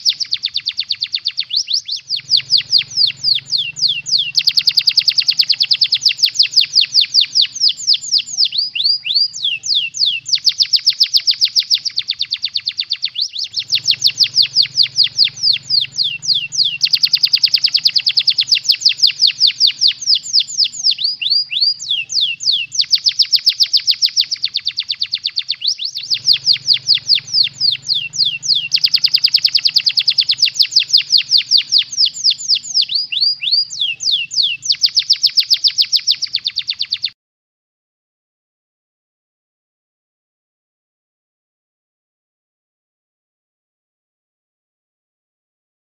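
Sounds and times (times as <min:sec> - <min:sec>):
canary singing: 0:00.0 - 0:37.2
faint low hum: 0:00.1 - 0:34.9.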